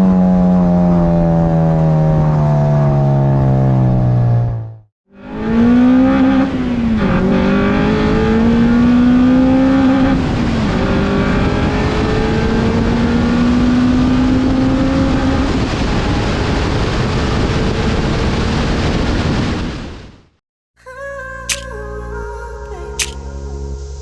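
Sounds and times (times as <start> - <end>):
car engine accelerating hard: 0.1 - 15.7.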